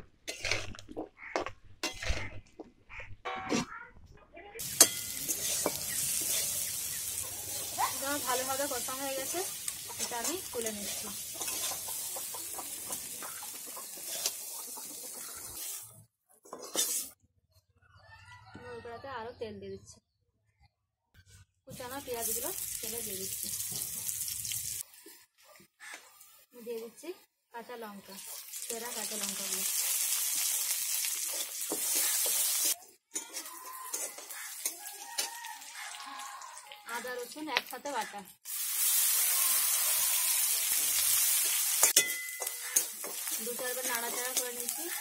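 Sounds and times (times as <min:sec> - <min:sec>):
metal ladle scraping pan: 0:00.2 - 0:00.8, 0:01.8 - 0:02.4, 0:04.6 - 0:15.8, 0:16.4 - 0:17.2, 0:31.1 - 0:35.4, 0:41.2 - 0:45.0
vegetables sizzling in hot oil: 0:04.6 - 0:15.9, 0:21.7 - 0:25.0, 0:28.0 - 0:35.9, 0:37.6 - 0:45.0.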